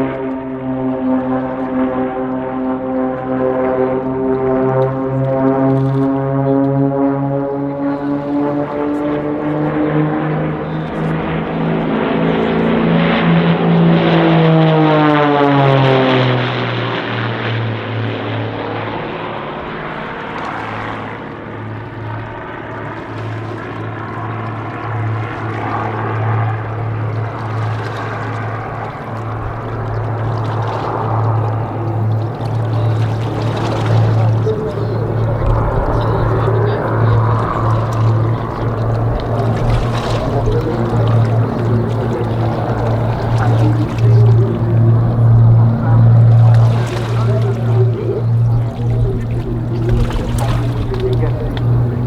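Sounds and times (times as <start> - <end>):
propeller aircraft passing: 0.0 - 52.0.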